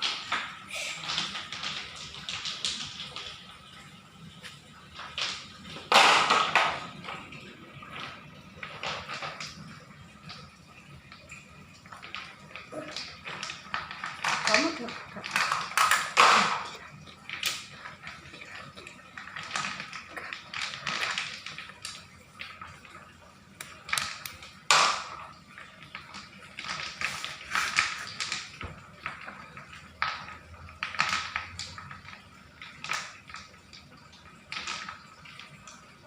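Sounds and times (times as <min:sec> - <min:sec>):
small stones clattering: 0:00.0 - 0:36.0.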